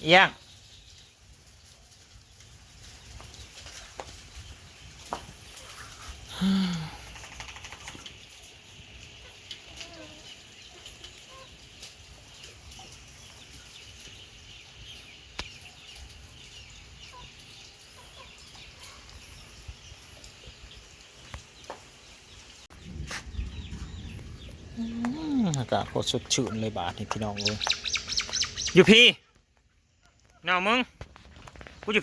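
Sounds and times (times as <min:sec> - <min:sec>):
chickens clucking: 0:07.1 - 0:22.1, 0:23.5 - 0:29.4.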